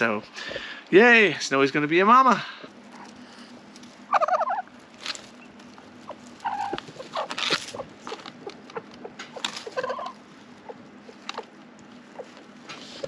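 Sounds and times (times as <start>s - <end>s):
hen clucking: 4.0s - 13.0s
scratching and rustling clicks: 4.8s - 13.0s.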